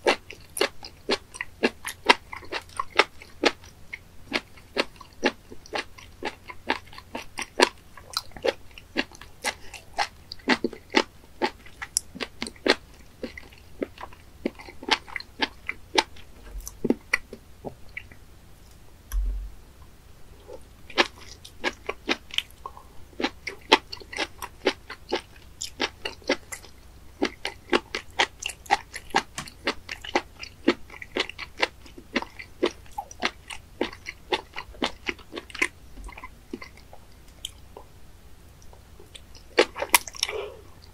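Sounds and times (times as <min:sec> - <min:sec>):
chewing rubbery flesh: 0:00.0 - 0:18.2, 0:20.5 - 0:37.9, 0:38.6 - 0:40.9
sharp mouth clicks: 0:19.1 - 0:19.5.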